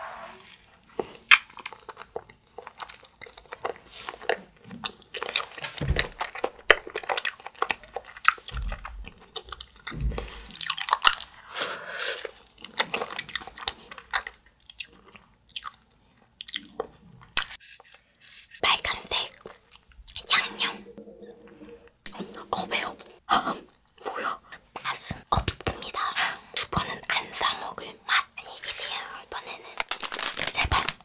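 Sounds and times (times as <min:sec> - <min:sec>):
chewing ice cream bar: 0:01.0 - 0:11.3, 0:12.2 - 0:17.6.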